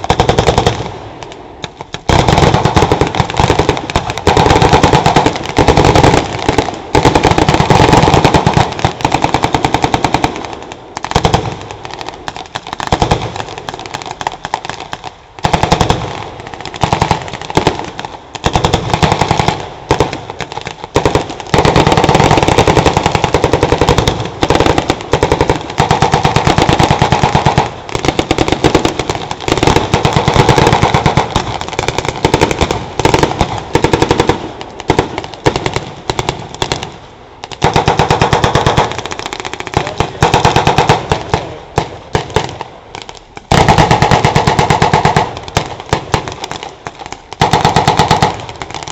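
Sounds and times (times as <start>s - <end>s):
automatic gunfire bursts: 0.0s - 0.9s, 2.1s - 11.6s, 15.4s - 17.8s, 21.0s - 36.8s, 37.6s - 42.6s, 43.5s - 45.3s, 47.4s - 48.9s.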